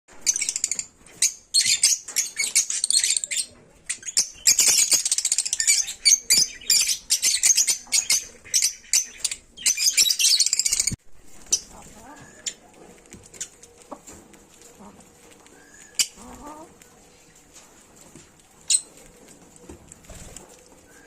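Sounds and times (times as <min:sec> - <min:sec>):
lovebirds chirping: 0:00.1 - 0:17.6, 0:18.2 - 0:21.0.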